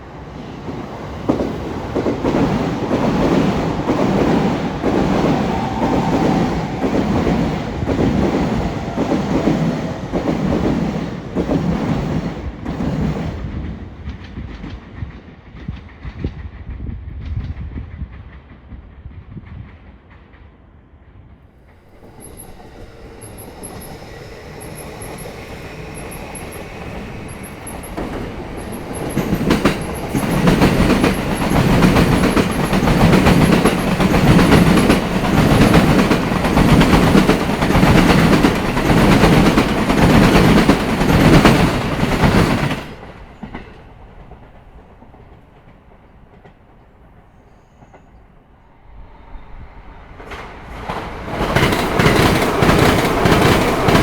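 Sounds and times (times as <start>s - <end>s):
train approaching: 0.0s - 54.0s
train wheels clattering over rail joints: 21.9s - 46.8s, 50.2s - 54.0s.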